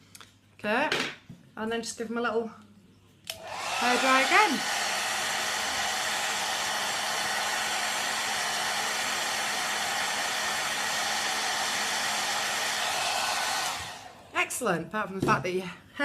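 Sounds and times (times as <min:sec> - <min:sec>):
hair dryer blowing: 0:03.3 - 0:14.4.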